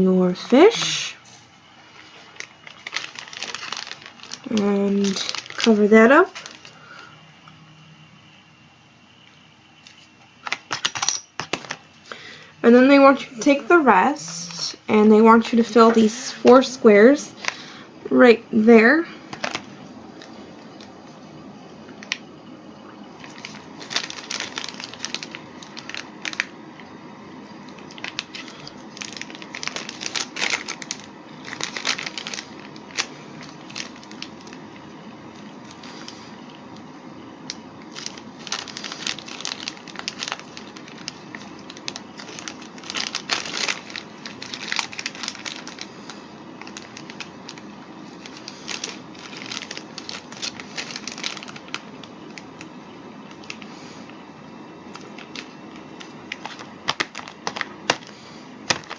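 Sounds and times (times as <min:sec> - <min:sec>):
plastic tray crinkling and clicking: 0:54.9 - 0:58.1, 0:58.7 - 0:58.9.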